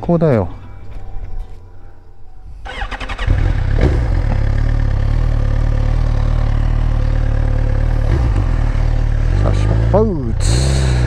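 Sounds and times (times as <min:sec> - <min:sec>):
motorcycle engine starting and idling: 0:02.6 - 0:11.0.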